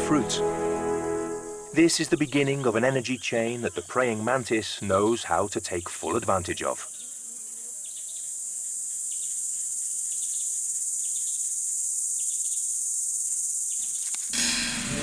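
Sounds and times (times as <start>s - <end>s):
louder fuller sound: 0.0s - 1.8s
insects droning chorus: 0.0s - 15.0s.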